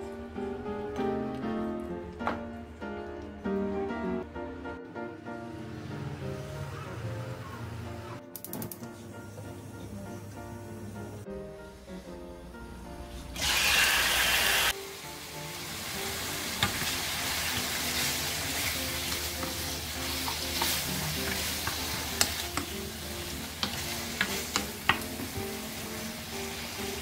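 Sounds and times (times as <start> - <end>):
chicken sizzling in hot oil: 13.4 - 27.0.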